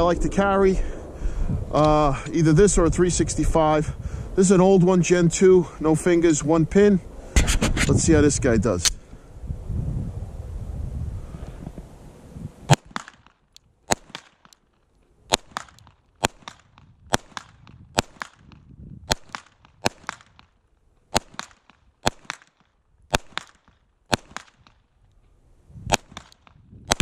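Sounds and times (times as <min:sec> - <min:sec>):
pistol shots with echo: 0:12.7 - 0:13.3, 0:13.9 - 0:14.6, 0:15.3 - 0:20.5, 0:21.1 - 0:24.8, 0:25.9 - 0:27.0.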